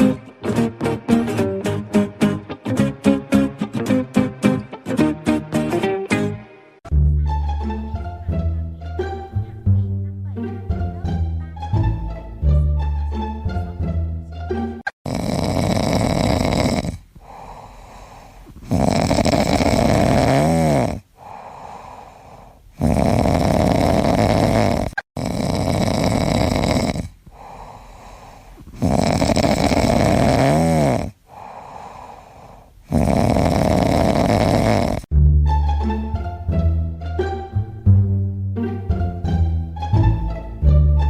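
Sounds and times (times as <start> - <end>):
pet snoring: 14.8 - 35.1
quiet breaths: 15.1 - 35.1.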